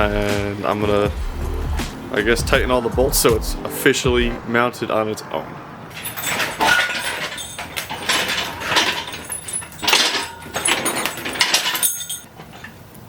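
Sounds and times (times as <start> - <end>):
metal chain rattling: 5.9 - 12.4.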